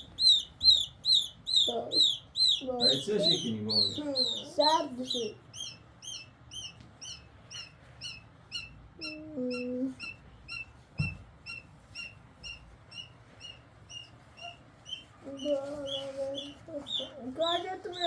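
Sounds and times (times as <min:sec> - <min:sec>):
small bird chirping: 0:00.0 - 0:18.0
thump: 0:11.0 - 0:11.3.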